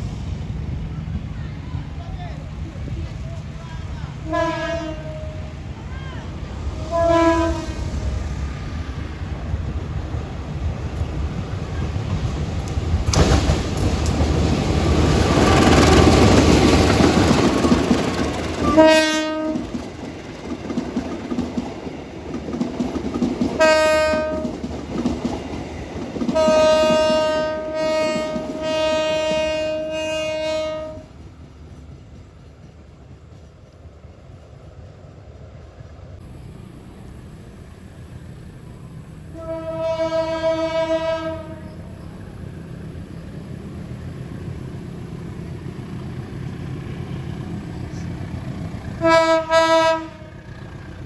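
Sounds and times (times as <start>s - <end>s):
train rumbling on rails: 0.0s - 51.0s
locomotive horn blasts: 4.2s - 5.6s, 6.8s - 8.1s, 18.6s - 19.7s, 23.6s - 24.5s, 26.4s - 31.0s, 39.3s - 41.9s, 49.0s - 50.4s.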